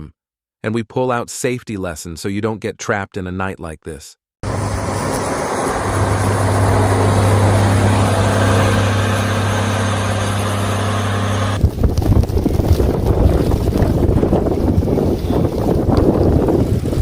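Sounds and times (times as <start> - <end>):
road noise: 4.4 - 11.9
rough gusty noise: 4.4 - 17.0
vehicle engine hum: 4.4 - 17.0.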